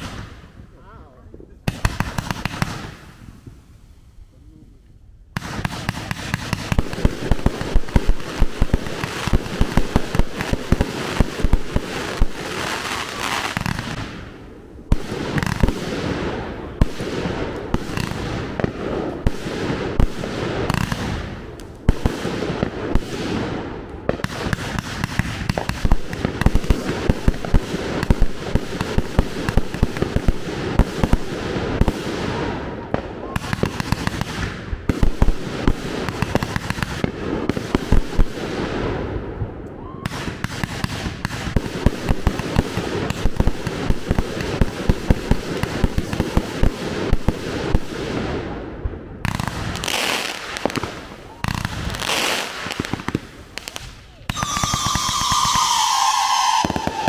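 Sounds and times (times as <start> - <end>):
fireworks bangs and crackles: 0.0 - 4.2, 5.3 - 57.0.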